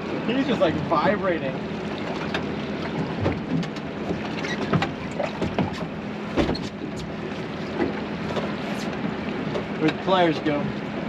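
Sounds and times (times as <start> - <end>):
boat engine humming: 0.0 - 11.0
water noise: 0.0 - 11.0
wind: 0.0 - 11.0.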